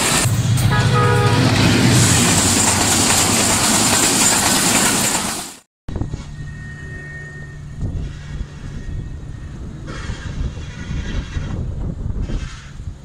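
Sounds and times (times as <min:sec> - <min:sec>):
rushing clatter of train wheels: 0:00.0 - 0:06.3
distant train hum and rumble: 0:00.0 - 0:13.0.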